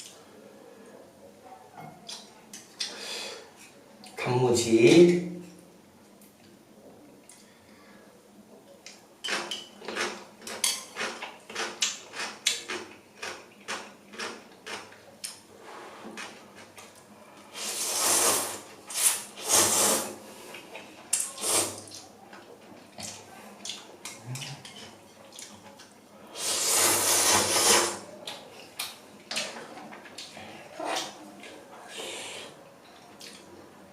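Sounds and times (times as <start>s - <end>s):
slurping noodles: 17.5s - 20.5s, 26.4s - 28.0s.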